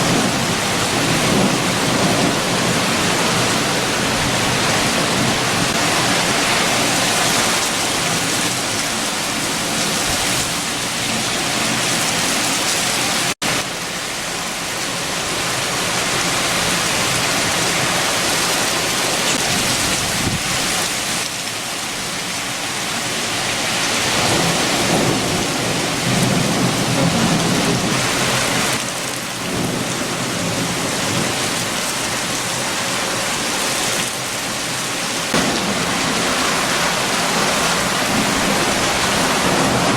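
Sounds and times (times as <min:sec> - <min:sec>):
heavy rain and wind: 0:00.0 - 0:39.9.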